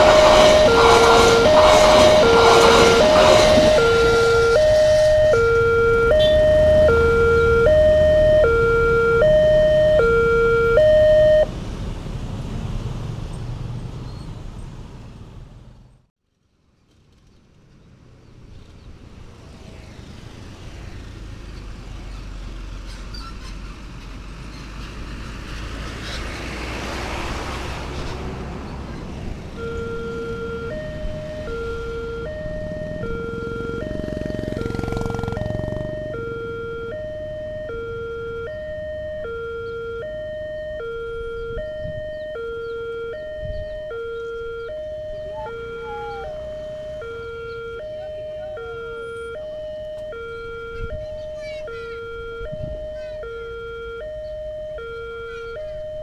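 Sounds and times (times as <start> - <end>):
two-note crossing siren: 0.0 - 11.5, 29.0 - 56.0
rushing noise: 0.0 - 12.0.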